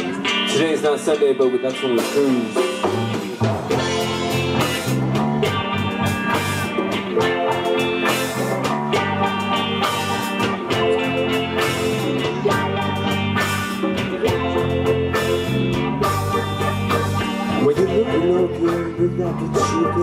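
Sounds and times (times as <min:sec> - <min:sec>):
electric guitar: 0:00.0 - 0:20.0
steady drum beat: 0:00.0 - 0:20.0
repeating bass line: 0:02.7 - 0:20.0.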